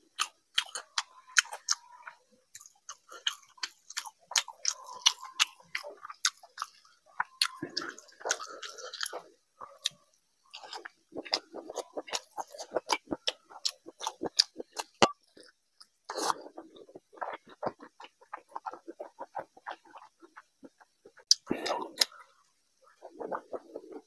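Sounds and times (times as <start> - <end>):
person chewing food: 0.0 - 24.0
wet lip smacks and mouth clicks: 10.7 - 22.2.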